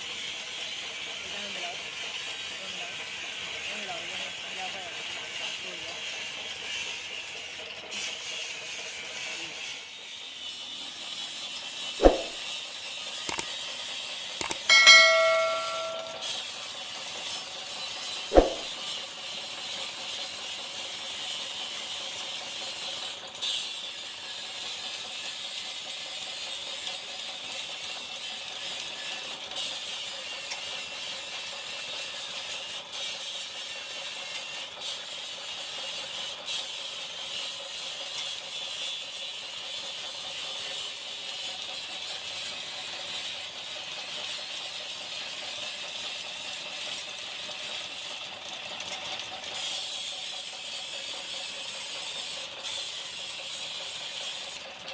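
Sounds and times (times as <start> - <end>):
brief clicks: 14.4 - 14.7.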